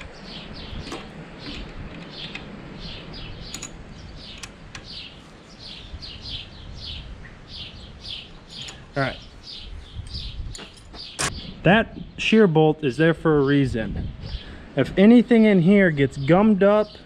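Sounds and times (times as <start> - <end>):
sharp clicks: 3.4 - 5.0.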